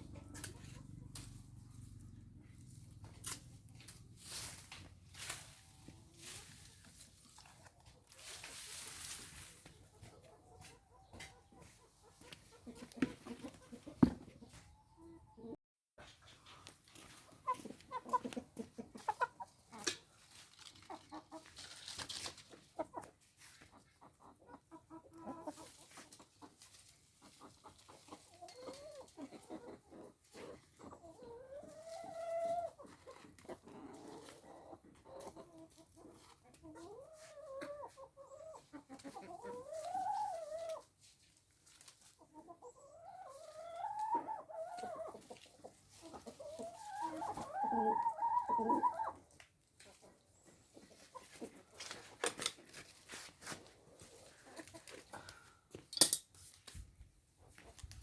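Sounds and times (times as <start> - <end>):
chickens clucking: 0.0 - 55.5, 57.4 - 58.0
chickens drawn-out calls: 16.2 - 41.0, 41.6 - 52.7.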